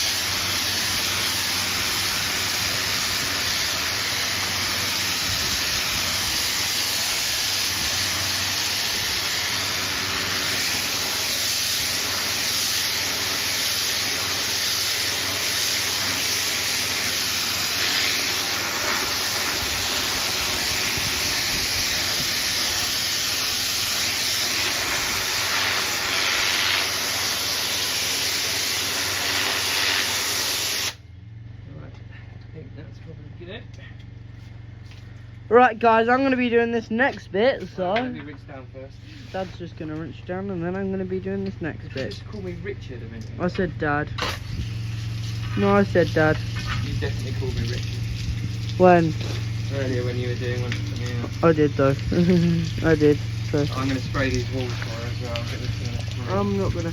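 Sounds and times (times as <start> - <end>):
pressure washer spraying: 0.0 - 31.0, 44.2 - 56.9.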